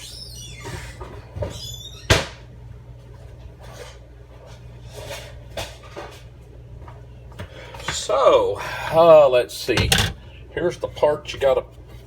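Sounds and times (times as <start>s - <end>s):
rustling and scraping of parts: 9.8s - 10.3s.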